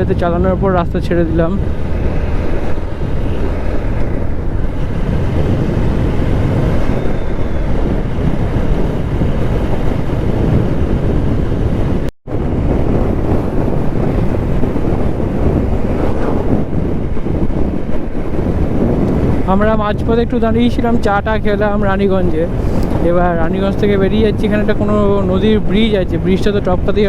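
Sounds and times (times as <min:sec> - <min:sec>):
motorcycle engine rumble: 0:00.0 - 0:12.0
wind buffeting microphone: 0:00.0 - 0:27.0.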